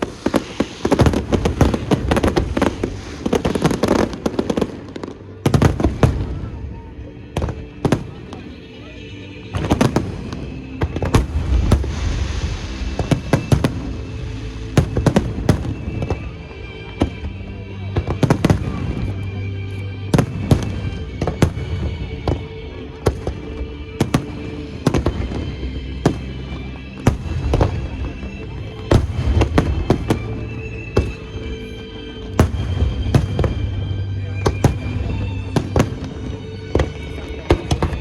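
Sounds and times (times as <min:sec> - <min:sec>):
fireworks bangs: 0:00.0 - 0:06.5, 0:09.5 - 0:16.3, 0:20.1 - 0:28.1, 0:28.7 - 0:31.6, 0:32.3 - 0:38.0
music: 0:00.0 - 0:38.0.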